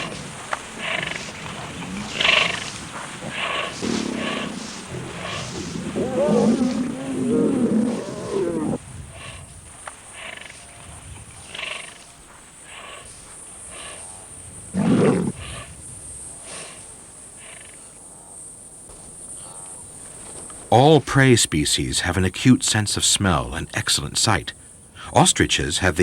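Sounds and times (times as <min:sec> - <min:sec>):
lions growling and snarling: 0:00.0 - 0:18.0.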